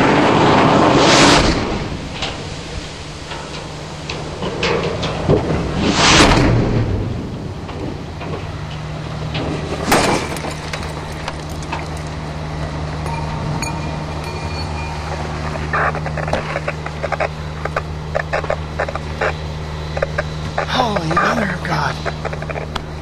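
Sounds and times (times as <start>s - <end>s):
low motor hum: 0.0s - 23.0s
scattered clicks: 15.4s - 21.4s.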